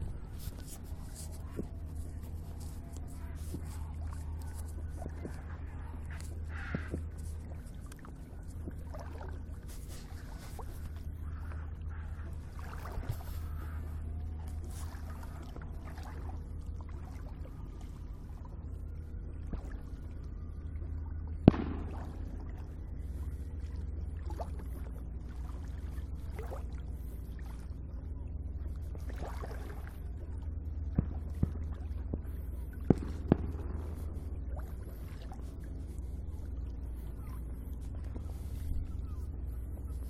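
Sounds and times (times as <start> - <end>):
low rumble: 0.0 - 40.0
water sloshing: 0.0 - 40.0
distant fireworks bangs: 21.4 - 22.4, 31.0 - 35.0.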